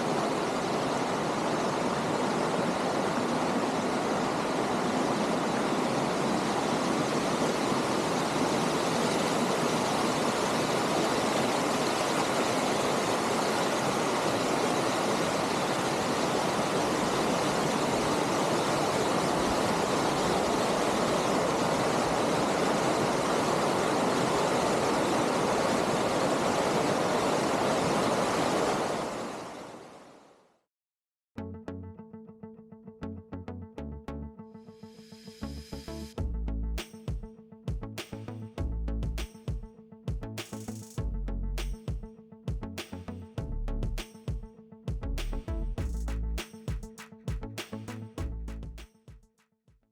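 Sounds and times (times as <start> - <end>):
mountain stream rushing over rock: 0.0 - 30.1.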